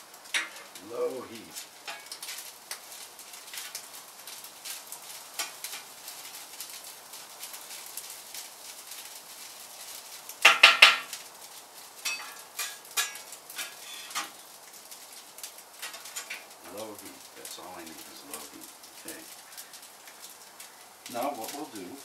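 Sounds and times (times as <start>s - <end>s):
metal cookware clattering: 0.3s - 0.8s, 12.0s - 14.4s.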